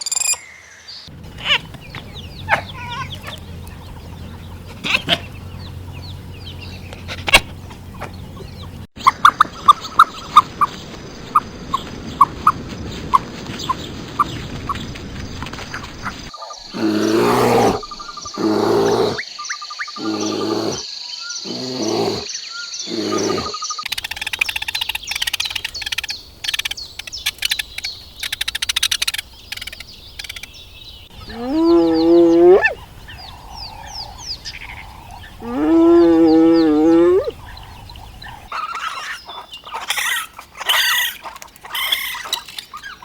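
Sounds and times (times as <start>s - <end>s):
animal calls: 1.1s - 10.6s, 16.4s - 19.3s, 19.9s - 30.5s, 31.1s - 43.0s
quick chirping: 1.1s - 10.8s, 22.9s - 31.4s.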